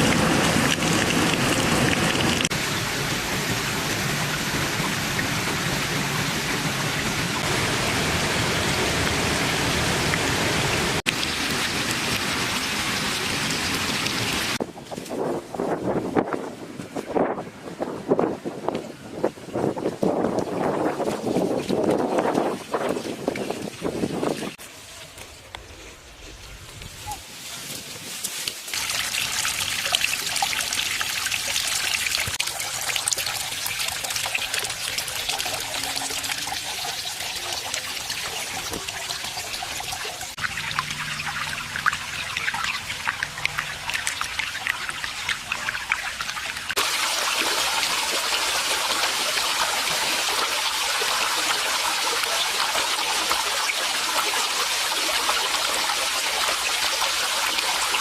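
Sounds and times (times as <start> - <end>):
waterfall splashing into pond: 0.0 - 14.6, 28.4 - 58.0.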